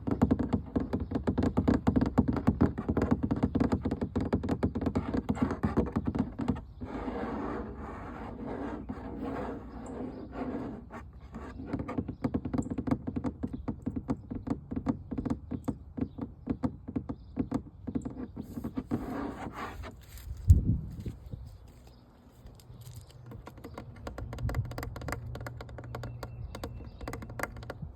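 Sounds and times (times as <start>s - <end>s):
tapping on an object: 0.0s - 6.8s, 11.1s - 19.0s, 22.6s - 27.9s
scratching on an object: 0.0s - 21.9s, 22.6s - 27.9s.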